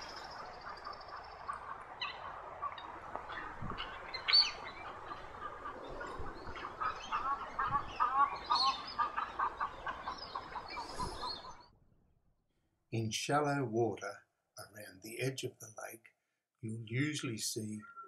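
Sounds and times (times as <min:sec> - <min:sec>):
birds chirping: 0:00.0 - 0:11.8, 0:16.6 - 0:18.0.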